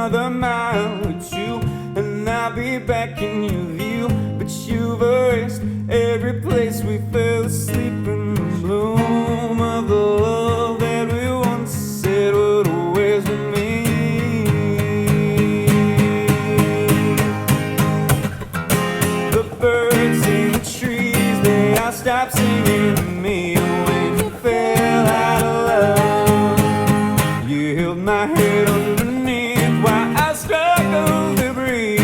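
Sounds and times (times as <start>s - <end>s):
acoustic guitar strumming: 0.0s - 32.0s
person singing: 6.0s - 18.1s, 19.2s - 32.0s.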